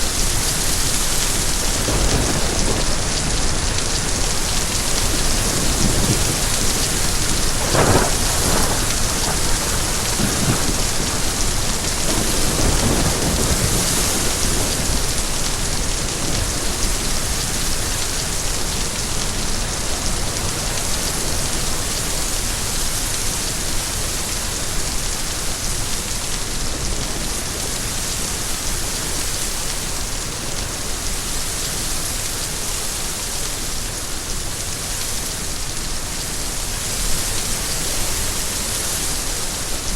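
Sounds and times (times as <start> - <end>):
steady rain: 0.0 - 39.9
thunder rumbling: 0.1 - 17.8.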